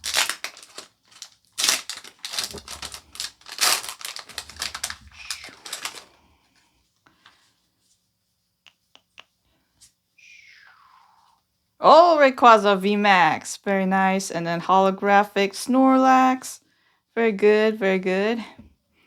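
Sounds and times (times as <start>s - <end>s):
scissors cutting plastic wrapping: 0.0s - 6.1s.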